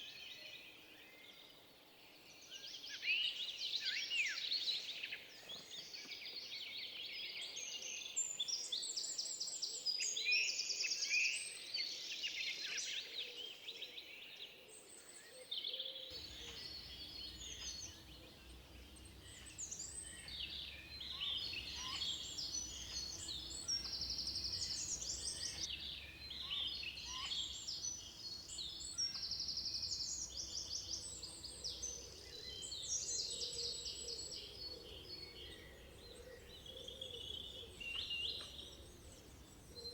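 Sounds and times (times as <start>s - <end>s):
songbirds singing: 15.1s - 39.9s.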